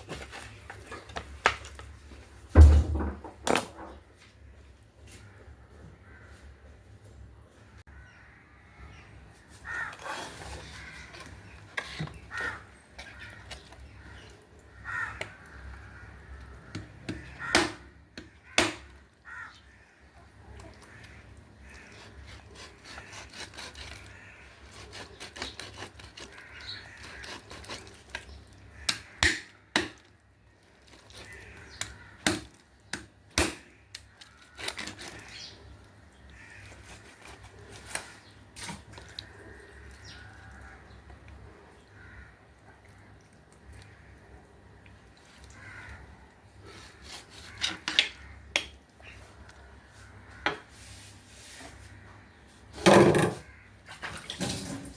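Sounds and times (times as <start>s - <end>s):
crows cawing: 5.1s - 6.7s, 7.8s - 32.6s, 33.5s - 35.6s, 36.2s - 38.3s, 39.0s - 43.1s, 43.7s - 44.4s, 45.3s - 50.8s, 53.4s - 53.9s.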